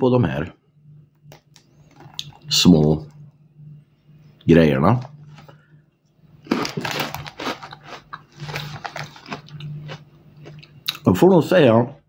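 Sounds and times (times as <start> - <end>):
crunchy snack chewing: 6.4 - 11.0.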